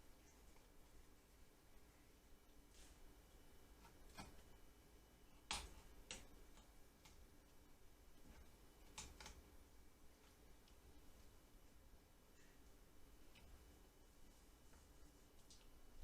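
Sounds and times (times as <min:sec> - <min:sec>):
faint clicks and taps: 0:03.4 - 0:04.6, 0:05.4 - 0:11.3, 0:14.6 - 0:16.0.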